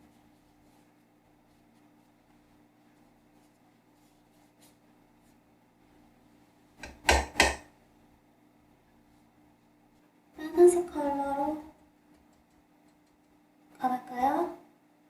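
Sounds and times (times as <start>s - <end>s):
faint steady hum: 0.0s - 15.0s
quick knocks: 6.8s - 7.7s.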